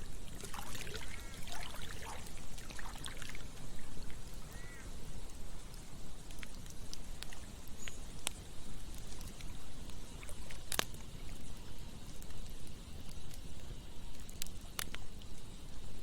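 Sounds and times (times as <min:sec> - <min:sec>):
river water flowing: 0:00.0 - 0:05.1
campfire crackling: 0:00.0 - 0:16.0.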